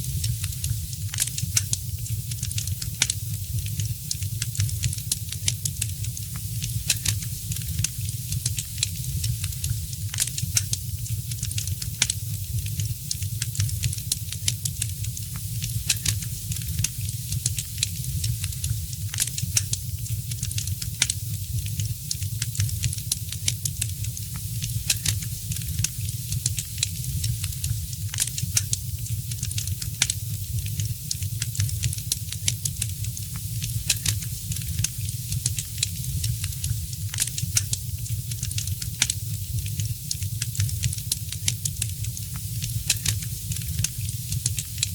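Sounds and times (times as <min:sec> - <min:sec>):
fire crackling and popping: 0:00.0 - 0:44.9
low rumble and hiss: 0:00.0 - 0:44.9.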